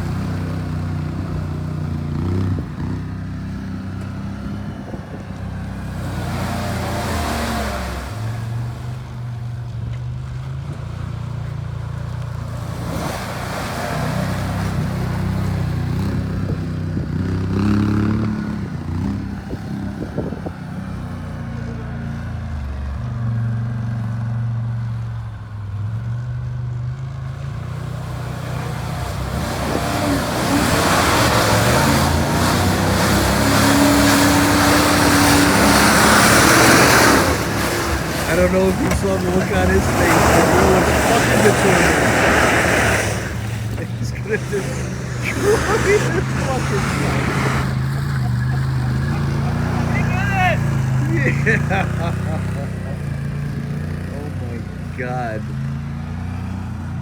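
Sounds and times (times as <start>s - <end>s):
tires spinning in mud: 0.0s - 57.0s
truck engine revving: 0.0s - 57.0s.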